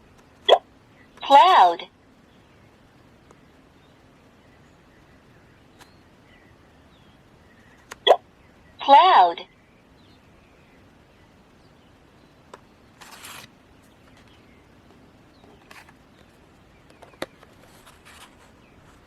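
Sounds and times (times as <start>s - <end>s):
background hiss: 0.0s - 19.0s
soft rustle: 12.9s - 19.0s.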